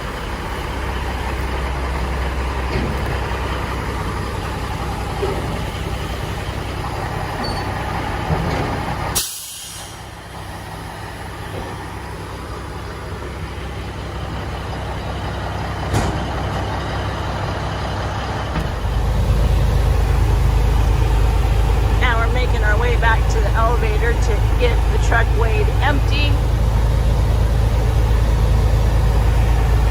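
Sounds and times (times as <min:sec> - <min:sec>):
truck engine running: 0:00.0 - 0:29.9
air brakes hissing: 0:09.1 - 0:10.2.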